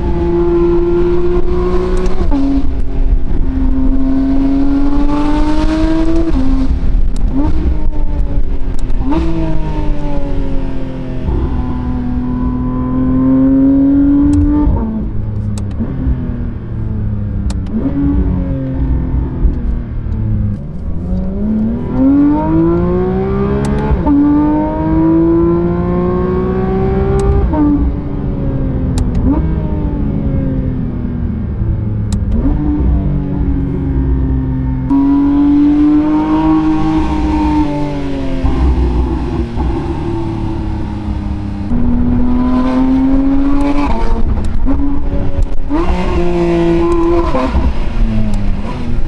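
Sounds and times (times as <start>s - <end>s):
sports car engine revving: 0.0s - 49.0s
sharp clicks: 14.2s - 16.1s, 17.4s - 17.9s, 27.2s - 27.6s, 28.9s - 29.4s.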